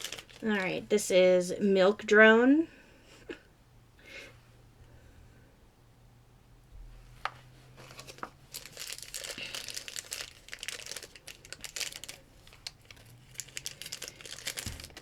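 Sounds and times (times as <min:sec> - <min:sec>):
wrapper crinkling and crackling: 0:00.0 - 0:00.9, 0:07.8 - 0:15.0.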